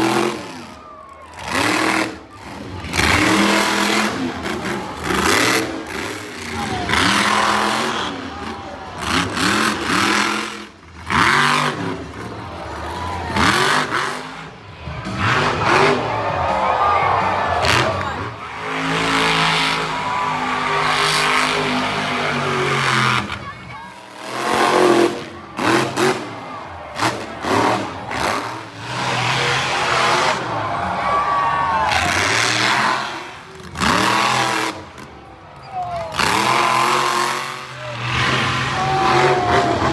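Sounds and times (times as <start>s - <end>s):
truck engine revving hard: 0.0s - 35.4s, 36.0s - 39.9s.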